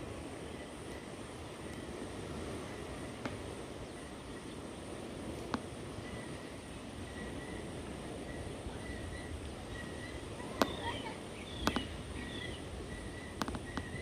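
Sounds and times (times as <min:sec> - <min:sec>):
steady hiss: 0:00.0 - 0:14.0
bird-like chirps: 0:05.9 - 0:14.0.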